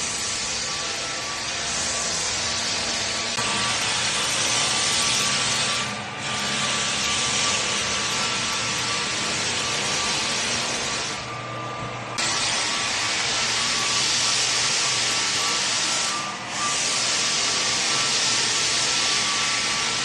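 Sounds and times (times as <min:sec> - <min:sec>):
power tool cutting wood: 0:00.0 - 0:11.4, 0:12.1 - 0:20.0.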